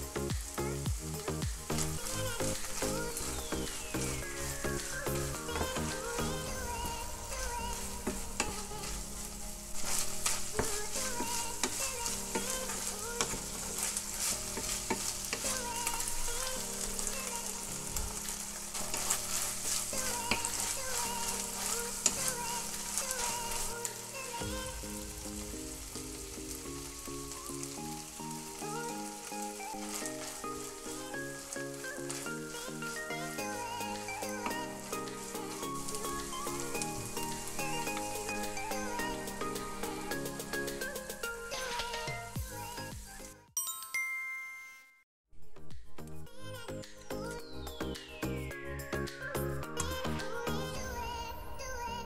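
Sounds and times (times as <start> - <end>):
meat sizzling in a pan: 0.0 - 41.8
wooden spatula scraping a pan: 1.8 - 24.7.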